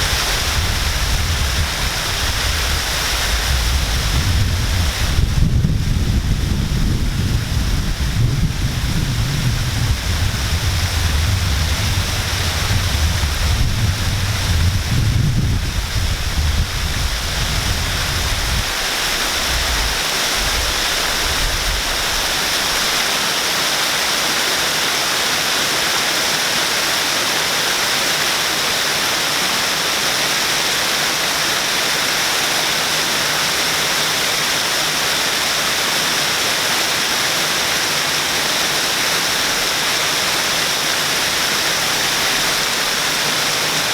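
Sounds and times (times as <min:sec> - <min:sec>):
low wind rumble on microphone: 0:00.0 - 0:23.0
waterfall rushing: 0:00.0 - 0:43.9.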